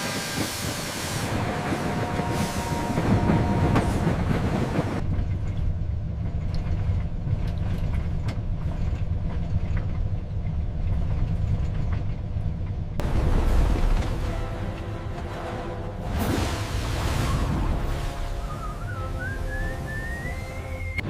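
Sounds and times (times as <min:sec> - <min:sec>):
steam locomotive hissing: 0:00.0 - 0:05.0
train rumble with clicks: 0:00.0 - 0:21.0.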